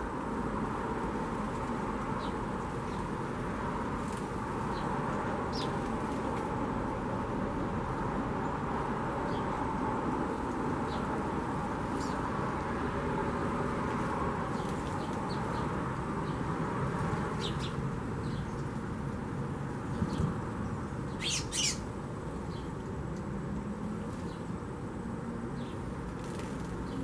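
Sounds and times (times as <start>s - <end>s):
birds chirping: 20.1s - 22.8s.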